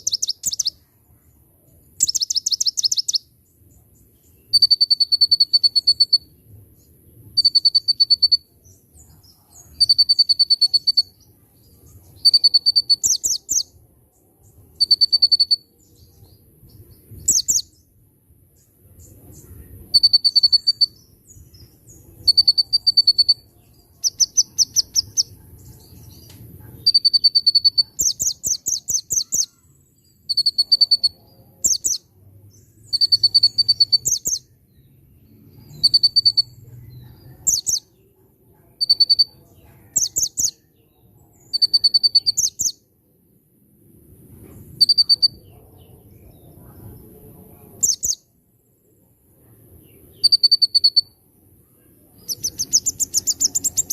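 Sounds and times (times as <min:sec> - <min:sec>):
bird singing buzzy notes and chirps: 0:00.0 - 0:38.1, 0:38.7 - 0:42.9, 0:44.8 - 0:48.7, 0:49.3 - 0:53.9
faint low rumble: 0:15.7 - 0:26.9, 0:43.0 - 0:44.8.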